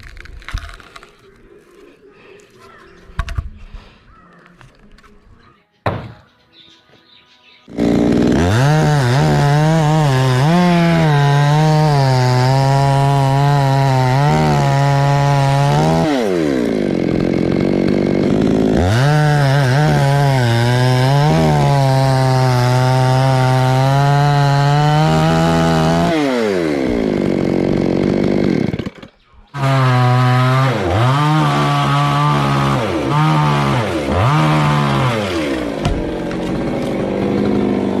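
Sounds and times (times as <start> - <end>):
chainsaw cutting wood: 7.7 - 38.0.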